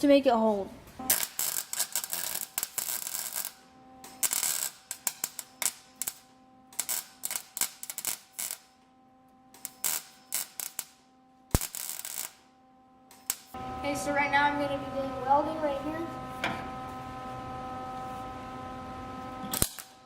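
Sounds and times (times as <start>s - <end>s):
short crackling bursts: 1.0s - 8.7s, 9.6s - 12.4s.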